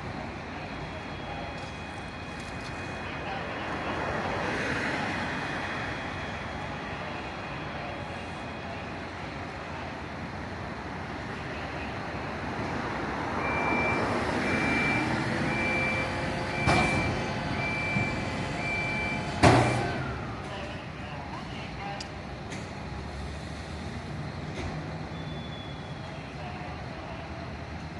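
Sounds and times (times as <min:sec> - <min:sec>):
reversing alarm beeping: 0:00.6 - 0:03.5, 0:13.4 - 0:21.1
truck engine running: 0:13.5 - 0:24.6.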